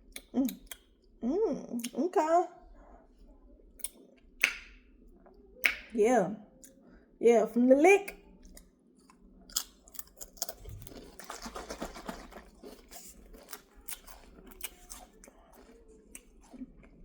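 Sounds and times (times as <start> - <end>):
person chewing crunchy chips: 9.5 - 17.0.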